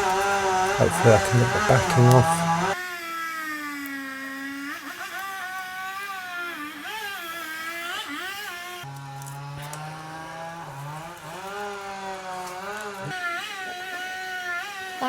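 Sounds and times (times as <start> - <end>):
chainsaw engine running: 0.0 - 2.8, 8.9 - 15.0.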